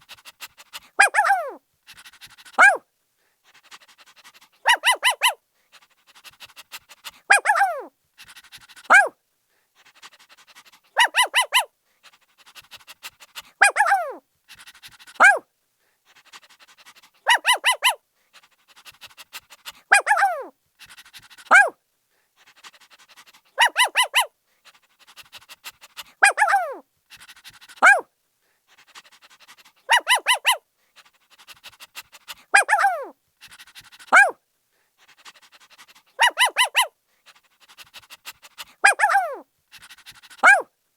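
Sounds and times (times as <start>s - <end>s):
puppy yelping: 0.9s - 1.6s, 2.6s - 2.8s, 4.6s - 5.4s, 7.3s - 7.9s, 8.9s - 9.1s, 11.0s - 11.7s, 13.6s - 14.2s, 15.2s - 15.4s, 17.2s - 18.0s, 19.9s - 20.5s, 21.5s - 21.7s, 23.6s - 24.3s, 26.2s - 26.8s, 27.8s - 28.0s, 29.9s - 30.6s, 32.5s - 33.1s, 34.0s - 34.4s, 36.2s - 36.9s, 38.8s - 39.4s, 40.4s - 40.7s
puppy barking: 1.0s - 1.6s, 2.6s - 2.8s, 4.6s - 5.4s, 7.3s - 7.9s, 8.9s - 9.1s, 11.0s - 11.7s, 13.6s - 14.2s, 15.2s - 15.4s, 17.2s - 18.0s, 19.8s - 20.5s, 21.5s - 21.8s, 23.6s - 24.3s, 26.2s - 26.8s, 27.8s - 28.0s, 29.9s - 30.6s, 32.5s - 33.1s, 34.1s - 34.4s, 36.2s - 36.9s, 38.8s - 39.4s, 40.4s - 40.7s.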